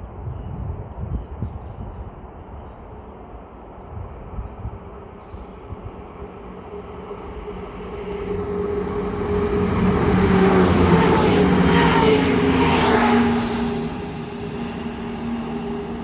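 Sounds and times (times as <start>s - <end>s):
diesel train passing: 3.6s - 16.0s.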